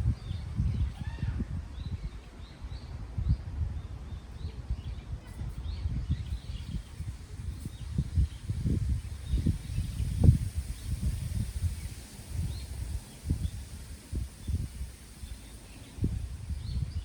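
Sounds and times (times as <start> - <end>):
wind buffeting microphone: 0.0 - 17.0
small birds chirping: 4.1 - 17.0.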